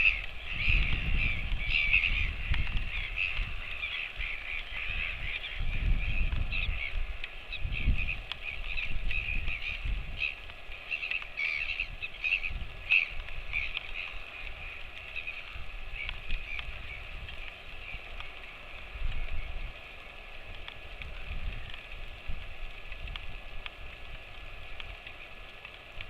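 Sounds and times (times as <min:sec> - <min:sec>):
birds chattering: 0:00.0 - 0:18.7.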